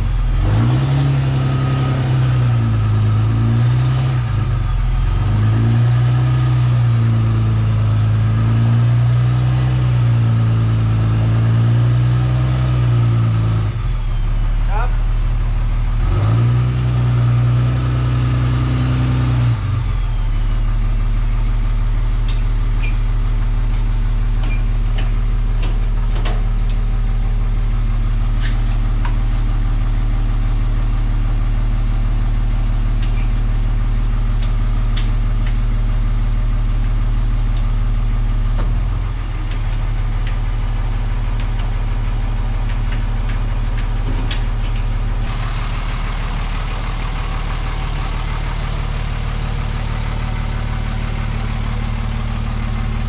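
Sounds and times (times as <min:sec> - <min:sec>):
vehicle engine idling: 0:00.0 - 0:53.0.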